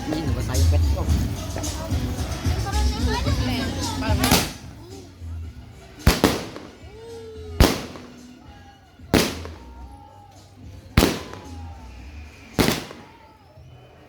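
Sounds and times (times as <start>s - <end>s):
fireworks bangs: 4.1s - 4.9s, 5.8s - 13.7s.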